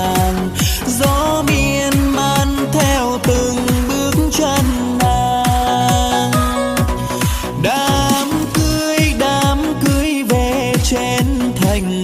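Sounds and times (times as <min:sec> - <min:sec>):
electronic kick drum beat: 0:00.0 - 0:12.0
bending synth melody: 0:05.1 - 0:07.2.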